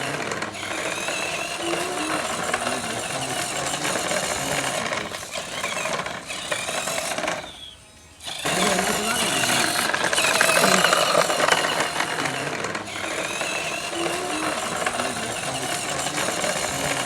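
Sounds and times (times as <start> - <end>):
tractor engine rattling: 0.0 - 17.0.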